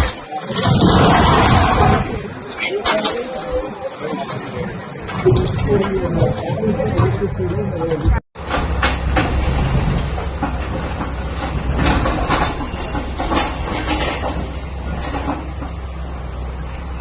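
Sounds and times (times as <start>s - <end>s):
heavy engine rumbling: 0.0s - 17.0s
clatter and knocks: 8.4s - 16.1s.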